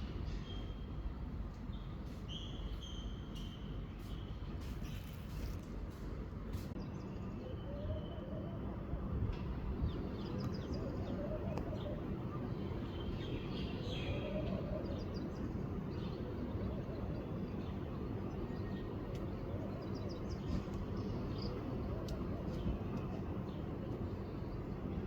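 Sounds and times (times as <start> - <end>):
small birds chirping: 1.6 - 5.6.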